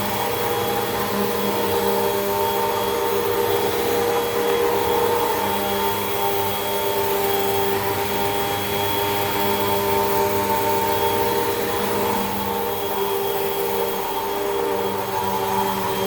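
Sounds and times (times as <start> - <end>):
vacuum cleaner running on carpet: 0.0 - 16.0.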